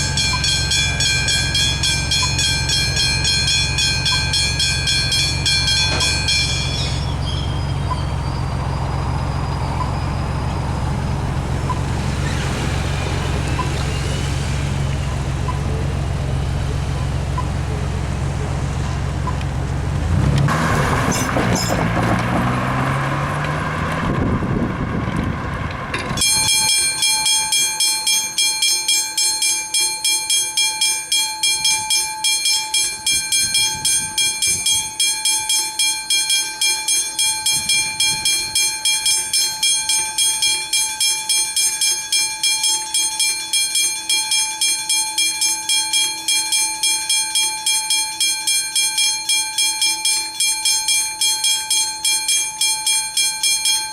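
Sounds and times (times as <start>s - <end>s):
level crossing warning bells: 0.0s - 20.6s, 25.7s - 53.9s
train passing with gliding whine: 0.0s - 22.0s, 23.4s - 27.7s.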